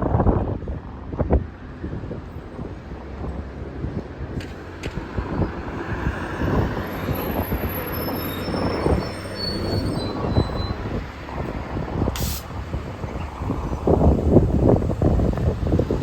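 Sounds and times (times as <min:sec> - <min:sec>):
bus engine rumbling: 0:00.0 - 0:16.0
high-pitched squeals: 0:05.3 - 0:11.2
short hiss: 0:12.1 - 0:12.6.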